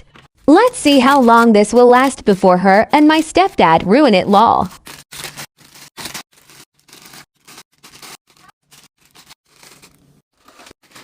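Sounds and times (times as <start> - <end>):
packaging rustling: 4.8 - 11.0.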